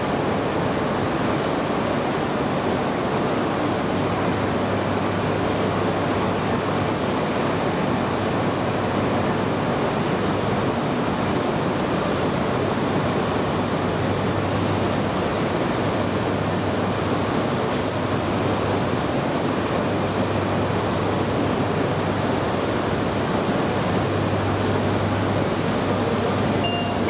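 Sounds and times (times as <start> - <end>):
low steady hum: 26.4 - 27.0.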